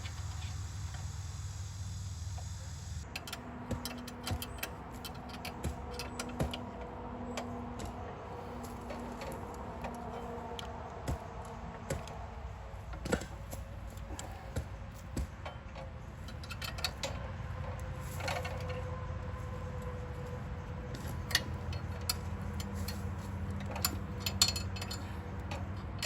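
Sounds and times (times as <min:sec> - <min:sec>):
metallic clicks and taps of tools: 0:03.0 - 0:08.0, 0:12.9 - 0:18.8, 0:20.9 - 0:26.0.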